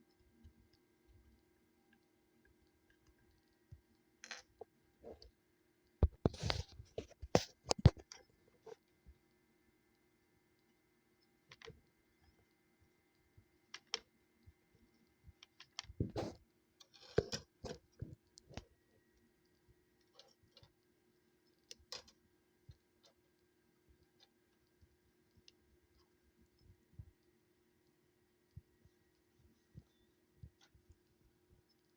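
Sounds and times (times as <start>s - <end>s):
clicks of small plastic parts and tools: 13.7s - 14.1s, 15.4s - 16.0s, 21.6s - 23.2s.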